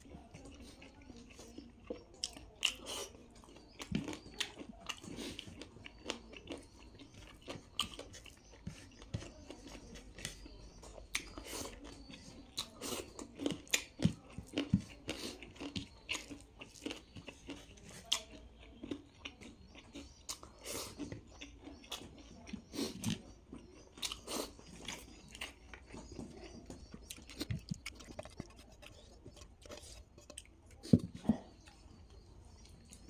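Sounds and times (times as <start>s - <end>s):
wet chewing and crunching: 0.0s - 33.0s.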